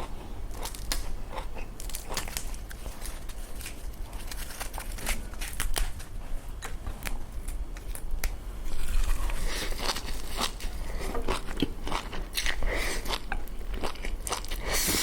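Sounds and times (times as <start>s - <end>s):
crisp eating crackles: 0.0s - 15.0s.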